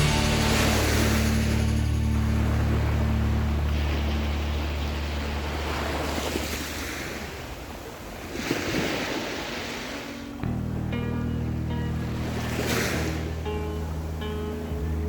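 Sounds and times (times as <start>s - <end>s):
waves washing on pebble beach: 0.0s - 10.2s.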